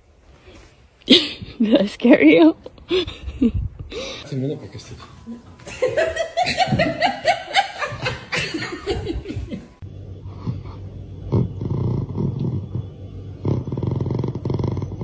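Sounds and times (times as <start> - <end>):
laughter: 2.9 - 3.6, 5.3 - 9.8
big cat growling: 10.2 - 15.0.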